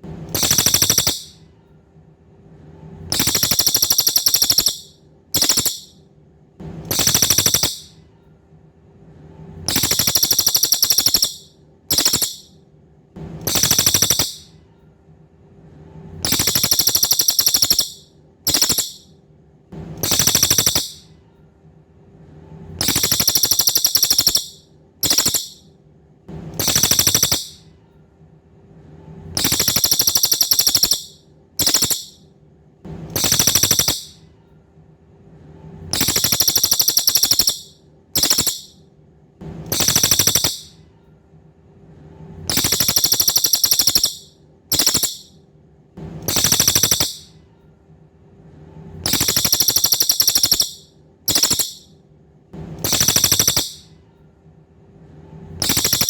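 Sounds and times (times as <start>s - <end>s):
faint low hum: 0.0s - 56.0s
songbird buzzy high trill: 3.1s - 5.9s, 9.7s - 12.5s, 16.3s - 19.1s, 20.0s - 21.0s, 22.8s - 25.6s, 29.4s - 32.2s, 36.0s - 38.7s, 42.5s - 45.3s, 49.1s - 51.9s.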